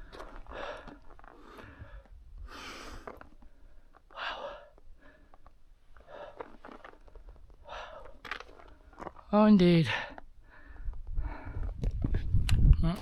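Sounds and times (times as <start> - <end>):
wind on microphone: 11.0 - 13.0.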